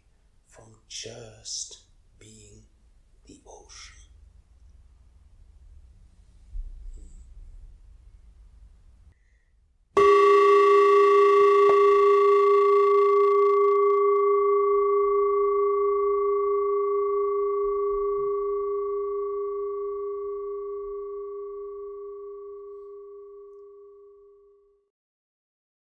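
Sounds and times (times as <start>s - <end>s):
singing bowl ringing: 10.0s - 24.6s.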